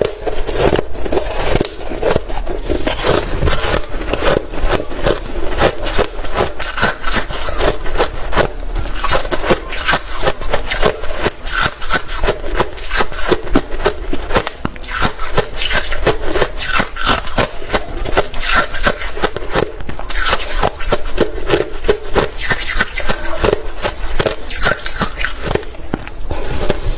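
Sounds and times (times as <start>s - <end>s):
chewing crunchy ice: 0.0s - 26.9s.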